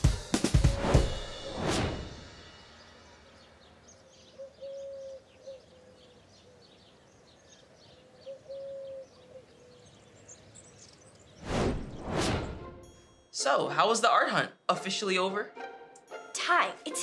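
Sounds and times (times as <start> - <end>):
small birds chirping: 2.7 - 12.1
dove cooing: 4.0 - 6.9, 7.8 - 10.1.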